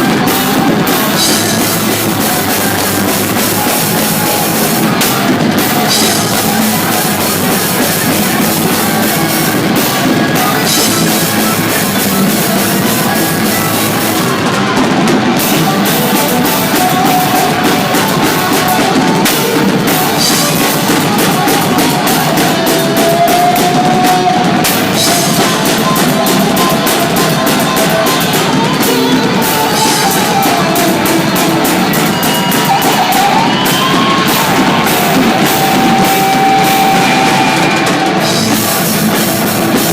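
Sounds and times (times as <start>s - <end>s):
distorted guitar: 0.0s - 39.9s
loud rock music: 0.0s - 39.9s
pounding drum kit: 0.0s - 39.9s.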